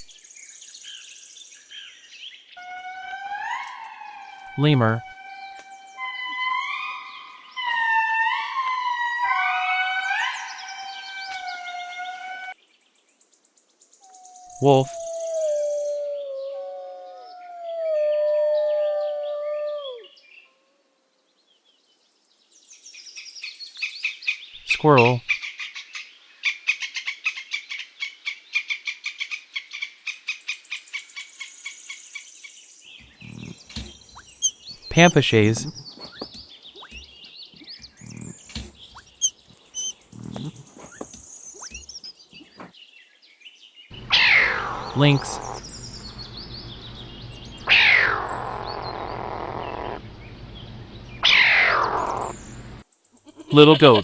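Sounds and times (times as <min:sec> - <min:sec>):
lemur wailing cries: 0:33.0 - 0:37.2, 0:37.8 - 0:42.6, 0:44.0 - 0:45.8, 0:47.6 - 0:50.0, 0:51.2 - 0:52.6
faint high chirps: 0:33.0 - 0:42.7
squirrel chattering: 0:33.0 - 0:42.7, 0:44.1 - 0:46.1.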